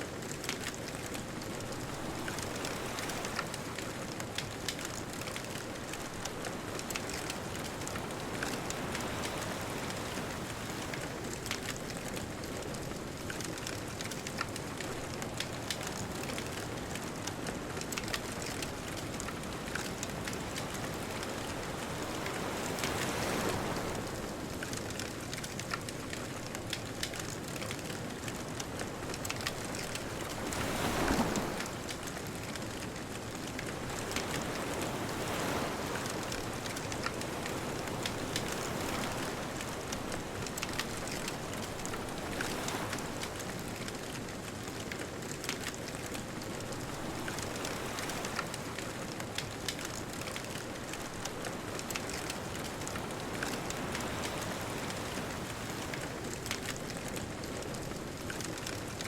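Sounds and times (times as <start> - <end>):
bonfire crackling and popping: 0.0 - 59.0
ocean waves washing in: 27.9 - 58.2.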